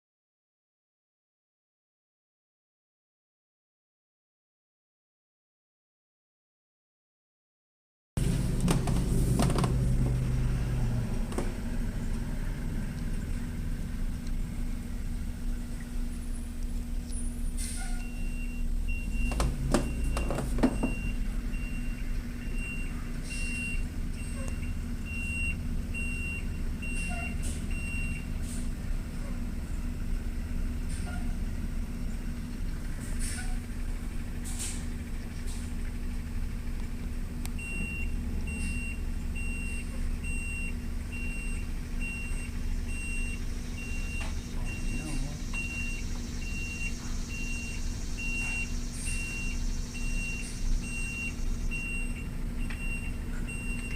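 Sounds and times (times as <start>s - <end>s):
rumble and clatter: 8.2s - 17.6s, 18.2s - 21.6s
truck reversing alarm beeping: 8.2s - 35.0s, 37.5s - 53.9s
truck engine running: 8.2s - 53.9s.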